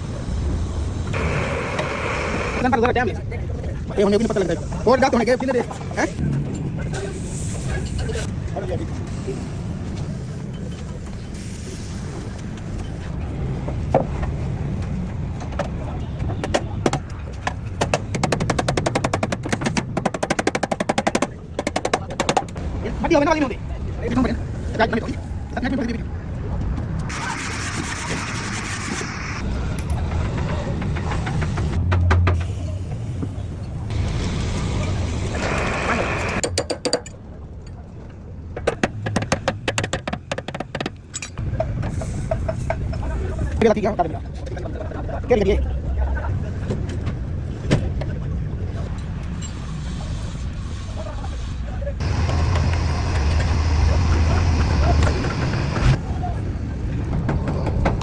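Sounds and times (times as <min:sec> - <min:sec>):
scattered knocks: 0:15.4 - 0:22.6, 0:38.6 - 0:41.0
steady low rumble: 0:51.8 - 0:58.0.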